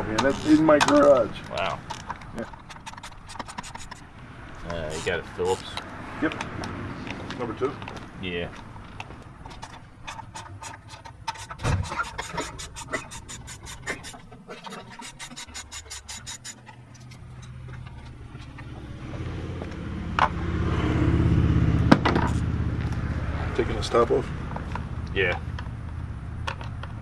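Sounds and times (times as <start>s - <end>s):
ratcheting driver clicking: 0.0s - 4.1s, 8.6s - 18.7s.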